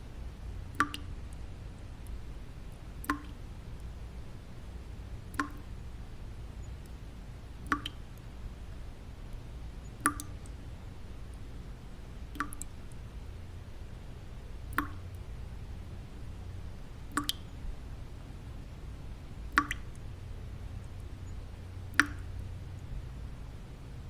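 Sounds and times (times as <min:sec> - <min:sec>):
low white-noise rumble: 0:00.0 - 0:24.0
water drops dripping: 0:00.6 - 0:04.0, 0:05.3 - 0:05.7, 0:07.6 - 0:08.3, 0:09.3 - 0:10.6, 0:12.3 - 0:13.1, 0:14.6 - 0:15.3, 0:17.1 - 0:17.6, 0:19.4 - 0:20.2, 0:20.8 - 0:22.9.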